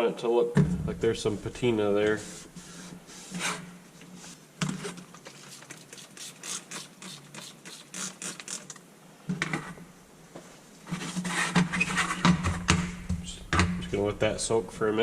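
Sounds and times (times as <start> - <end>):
low steady hum: 0.4 - 3.2, 12.4 - 15.0.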